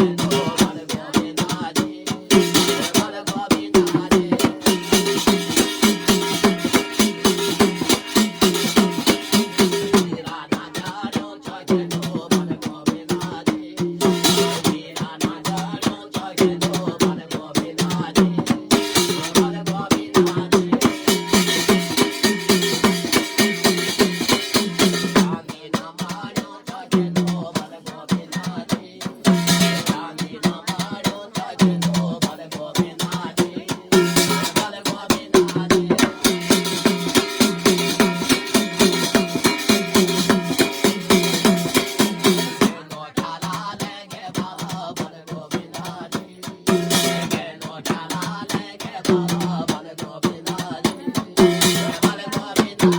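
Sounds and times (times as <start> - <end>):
drums beating fast rhythm: 0.0 - 52.9.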